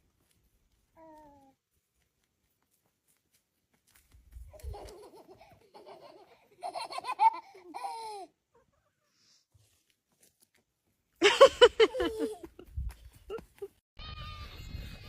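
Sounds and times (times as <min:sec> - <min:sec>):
person laughing: 0:11.2 - 0:13.8.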